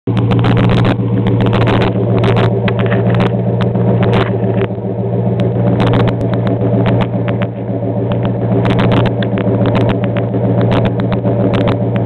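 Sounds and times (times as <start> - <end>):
car engine droning: 0.0 - 12.0
sharp clicks: 5.4 - 12.0.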